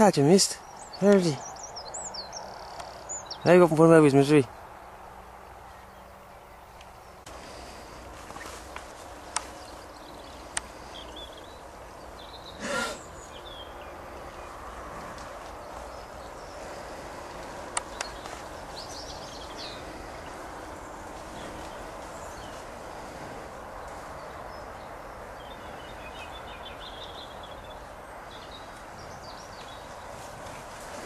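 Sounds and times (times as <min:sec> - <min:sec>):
outdoor background hiss: 0:00.0 - 0:31.0
small birds chirping: 0:00.0 - 0:31.0
sharp clicks: 0:17.7 - 0:18.3.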